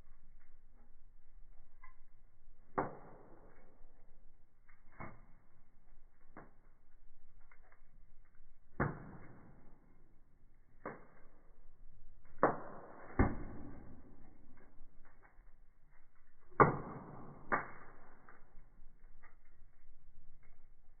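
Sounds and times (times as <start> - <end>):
firewood crackling: 0.0 - 21.0.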